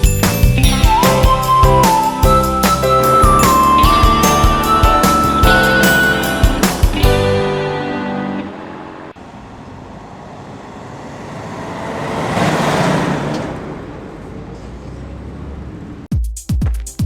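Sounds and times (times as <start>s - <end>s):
low engine rumble: 0.0s - 16.1s
cartoon vehicle rushing past: 0.8s - 16.0s.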